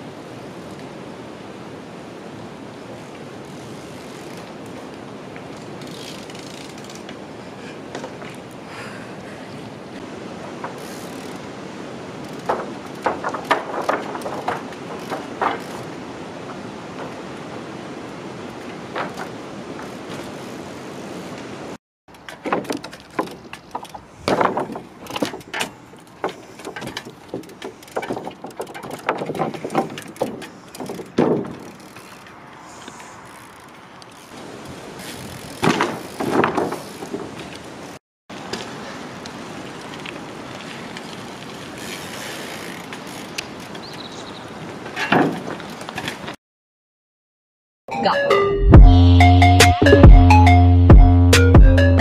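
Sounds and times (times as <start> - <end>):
bike wheels knocking on wood: 12.2 - 17.6, 22.2 - 32.2, 35.1 - 37.6.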